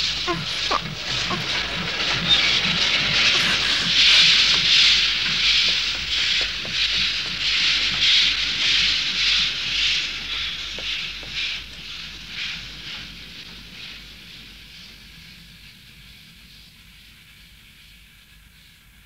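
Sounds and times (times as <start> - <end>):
cartoon steam locomotive chuffing: 0.0 - 14.2.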